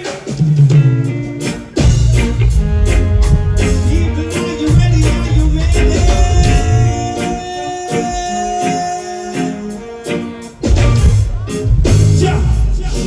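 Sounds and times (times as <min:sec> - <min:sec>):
live band music: 0:00.0 - 0:13.0
heavy bass line: 0:00.3 - 0:08.6, 0:10.4 - 0:13.0
long held note: 0:02.4 - 0:09.3.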